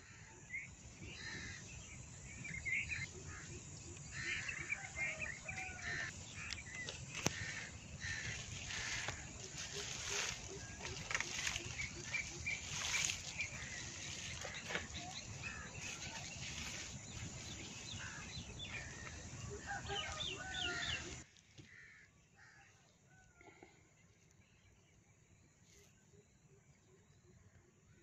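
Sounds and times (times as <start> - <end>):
small birds chirping: 0.5 - 21.2.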